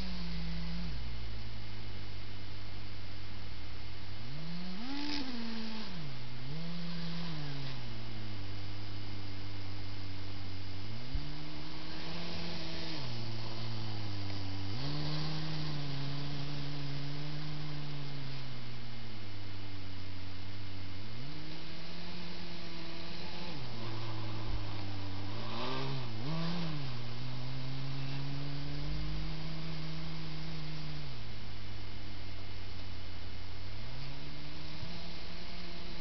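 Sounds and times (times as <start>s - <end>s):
electric motors whining: 11.0s - 18.2s.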